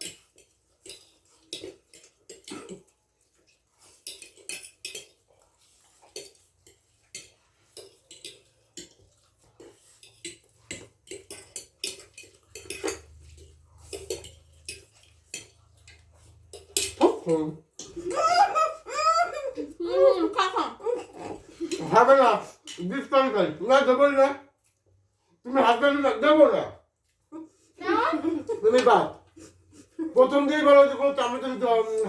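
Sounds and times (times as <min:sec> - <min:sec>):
cutlery clinking on plates: 0:00.0 - 0:18.0.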